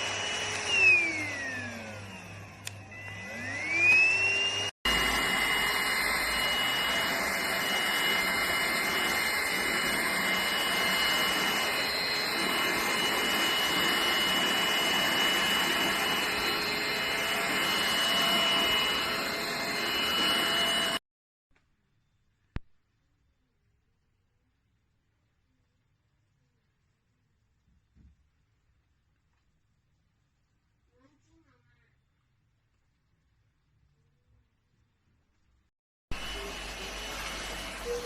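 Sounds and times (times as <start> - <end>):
vacuum cleaner motor whining: 0.0 - 21.0, 36.1 - 38.0.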